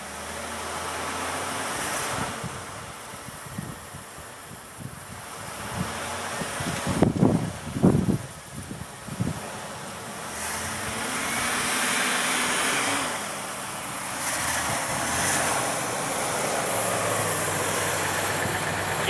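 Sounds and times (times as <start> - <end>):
snowblower running: 5.5 - 19.0.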